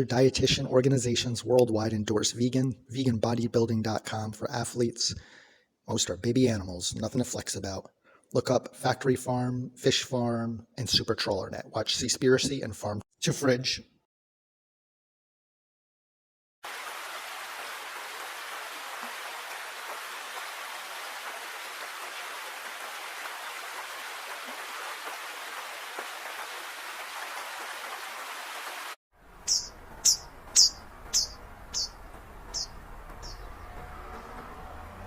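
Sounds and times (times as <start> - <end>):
steady hiss like rain: 16.6 - 33.2
bird chirping: 29.4 - 34.4.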